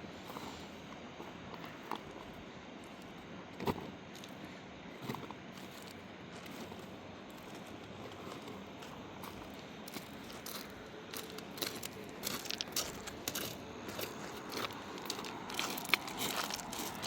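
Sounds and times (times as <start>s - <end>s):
crunching and crackling clicks: 7.4s - 17.0s.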